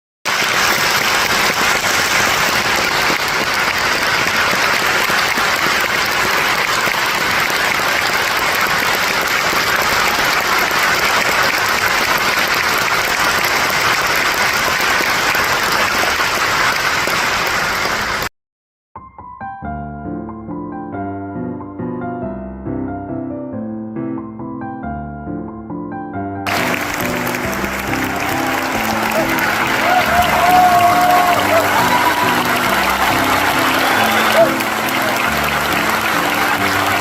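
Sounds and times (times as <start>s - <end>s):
audience applause: 0.3s - 18.3s, 26.5s - 37.0s.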